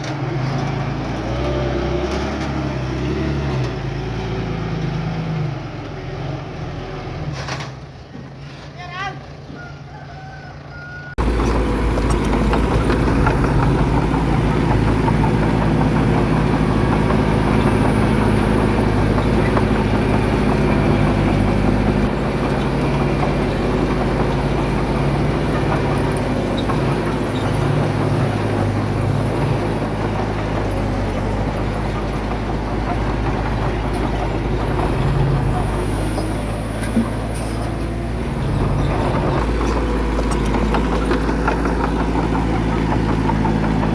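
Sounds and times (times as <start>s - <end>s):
heavy diesel engine running: 11.1s - 43.9s.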